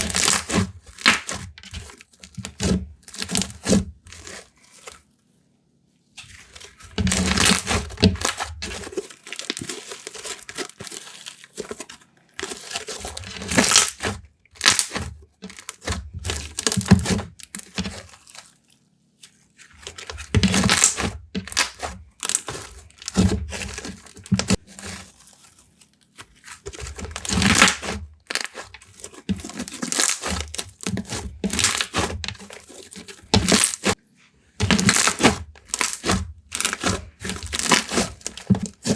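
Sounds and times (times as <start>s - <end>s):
slime squished by hand: 6.3s - 34.0s, 34.6s - 38.9s.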